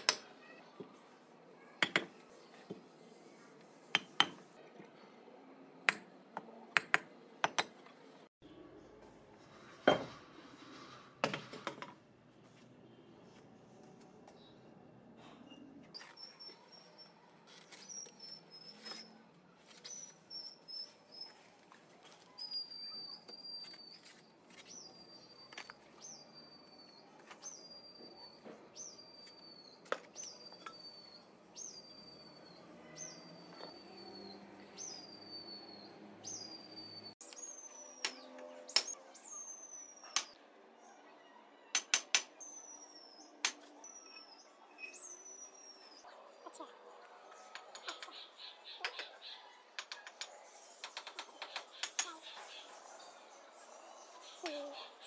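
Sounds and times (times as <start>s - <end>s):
trowel tapping bricks: 1.8s - 2.8s, 3.9s - 4.6s, 5.9s - 7.9s
small bird chirping: 22.3s - 40.4s.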